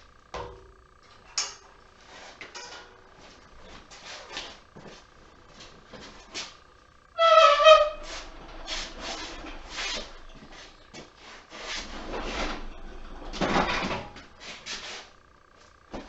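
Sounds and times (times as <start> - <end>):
loud high squeak: 7.2 - 10.1.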